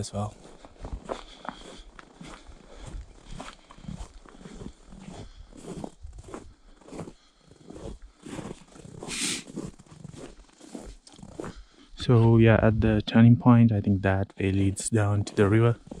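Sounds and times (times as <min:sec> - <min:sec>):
footsteps crunching in snow: 0:00.0 - 0:11.8.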